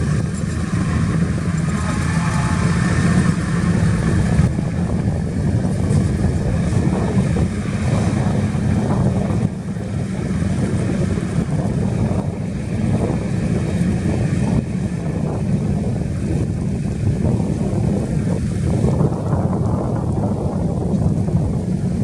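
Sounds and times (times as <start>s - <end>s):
heavy diesel engine droning: 0.0s - 22.0s.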